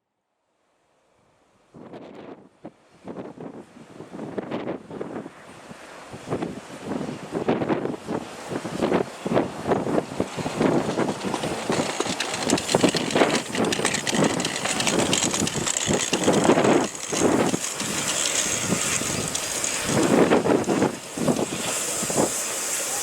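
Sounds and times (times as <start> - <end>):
wind buffeting microphone: 6.2 - 22.6
train running: 8.8 - 23.0.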